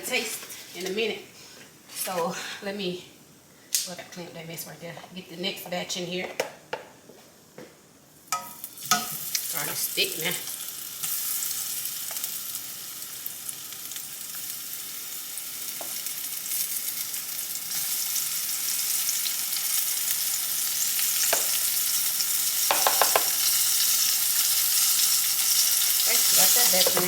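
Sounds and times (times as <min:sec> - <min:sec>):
vegetables sizzling in oil: 0:08.2 - 0:27.0.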